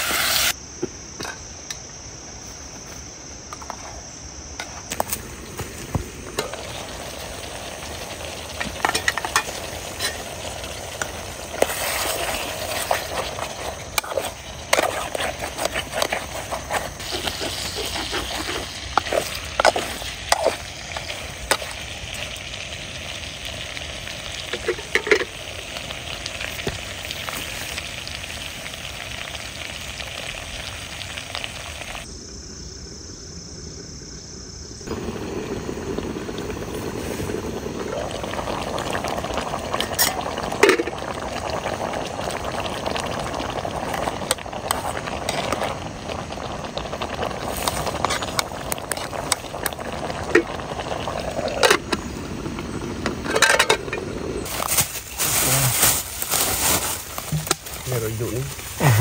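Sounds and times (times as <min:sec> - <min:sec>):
food sizzling in a pan: 0:00.0 - 0:00.6, 0:04.9 - 0:32.1, 0:34.9 - 0:59.0
stirring clicks and scrapes: 0:11.0 - 0:21.8, 0:43.9 - 0:45.8.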